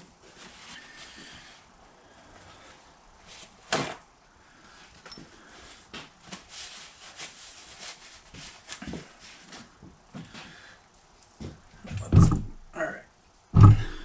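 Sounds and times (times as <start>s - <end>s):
rag tapping and rubbing metal: 11.9s - 12.7s, 13.6s - 14.0s
knock on metal housing: 12.0s - 12.6s, 13.6s - 14.0s.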